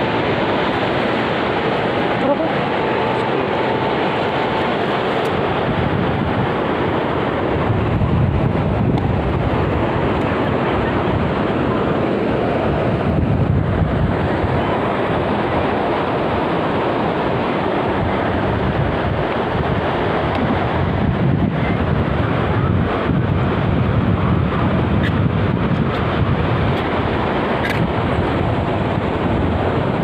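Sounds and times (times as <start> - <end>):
ocean surf breaking: 0.0 - 30.0
wind buffeting the microphone: 0.0 - 30.0.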